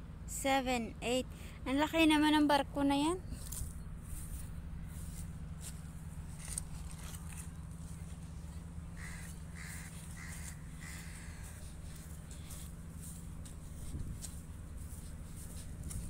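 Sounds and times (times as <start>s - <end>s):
steady low hum: 0.0s - 16.0s
bird calling: 3.2s - 15.6s.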